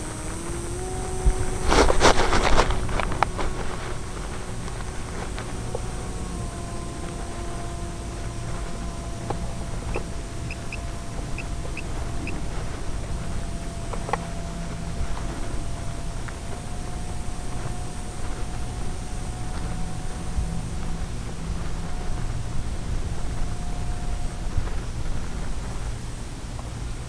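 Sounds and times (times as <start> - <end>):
faint steady whine: 0.0 - 27.0
wind noise: 0.0 - 27.0.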